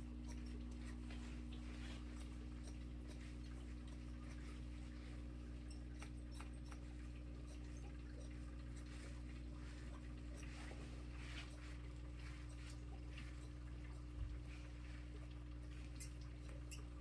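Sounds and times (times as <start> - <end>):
clicks and snips of cutting hair: 5.7 - 7.6.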